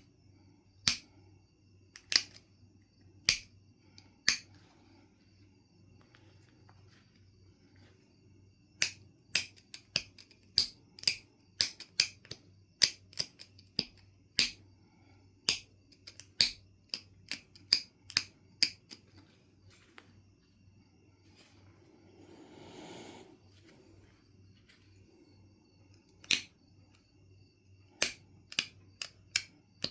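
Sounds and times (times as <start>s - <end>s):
stone knapping clicks: 0.8s - 1.1s, 1.9s - 2.5s, 3.2s - 4.5s, 8.8s - 14.6s, 15.4s - 19.0s, 26.1s - 26.6s, 27.9s - 29.9s.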